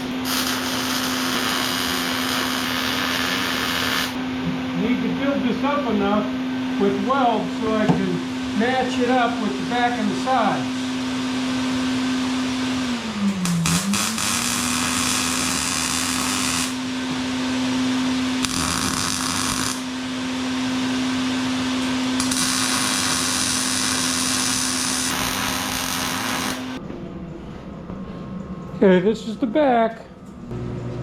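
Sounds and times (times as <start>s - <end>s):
angle grinder running: 0.0s - 4.2s, 13.5s - 16.9s, 18.4s - 20.0s, 22.2s - 26.8s
grinder grinding steel: 0.0s - 4.2s, 18.4s - 19.9s, 22.2s - 26.8s.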